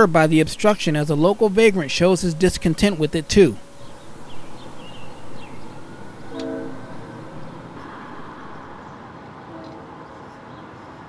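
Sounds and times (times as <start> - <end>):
train working uphill: 0.0 - 11.0
train horn blast: 1.8 - 10.2.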